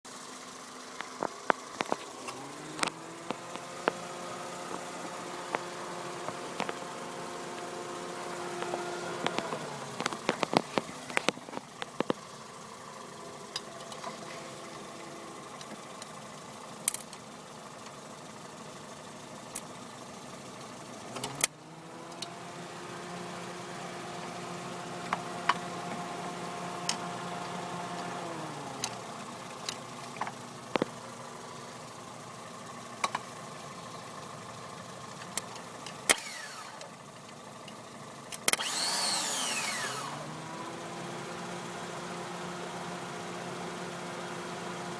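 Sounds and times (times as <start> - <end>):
engine hum failing to start: 1.0 - 12.1, 36.0 - 37.0, 38.3 - 40.8
clicks: 8.4 - 12.2, 35.2 - 40.2.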